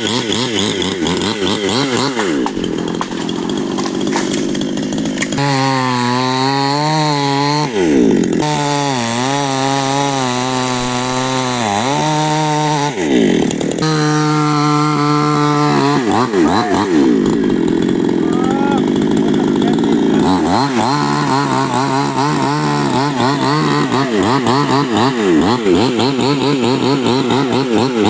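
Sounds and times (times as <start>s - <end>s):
chainsaw cutting wood: 0.0s - 28.0s.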